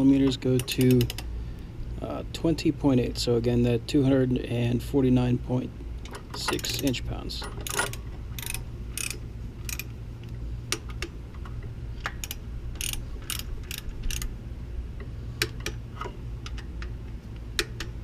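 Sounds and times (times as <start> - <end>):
steady low hum: 0.0 - 18.0
ratchet wrench clicking: 0.6 - 1.3, 6.4 - 9.9, 12.0 - 14.3, 17.5 - 18.0.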